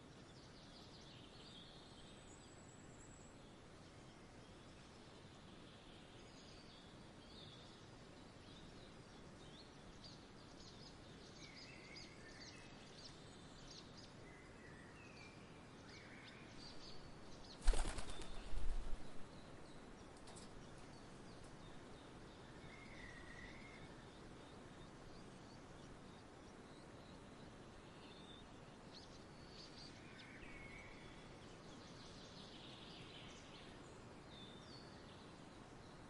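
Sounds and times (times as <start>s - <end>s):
small birds chirping: 0.0s - 36.0s
bird wings fluttering: 17.4s - 19.2s.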